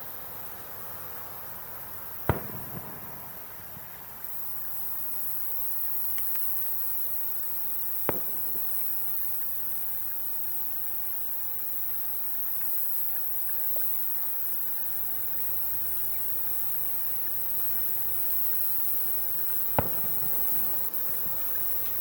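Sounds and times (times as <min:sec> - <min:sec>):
insects chirring: 0:00.0 - 0:22.0
firework shells bursting: 0:02.1 - 0:04.6, 0:07.9 - 0:10.0, 0:17.6 - 0:22.0.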